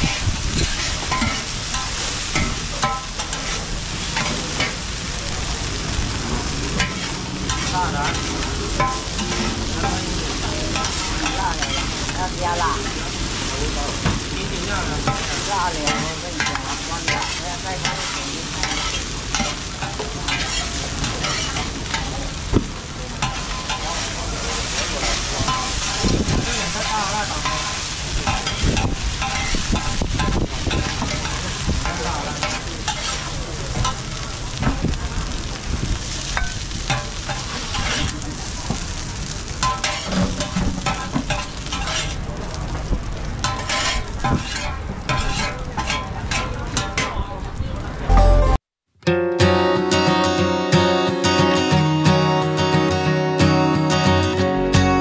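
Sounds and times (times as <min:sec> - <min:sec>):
metal spatulas scraping a pan: 0:00.0 - 0:04.8, 0:06.7 - 0:10.0, 0:15.0 - 0:22.1, 0:23.2 - 0:33.2, 0:36.4 - 0:38.1, 0:39.6 - 0:42.2, 0:43.4 - 0:47.1
omelette sizzling on a pan: 0:00.0 - 0:46.8.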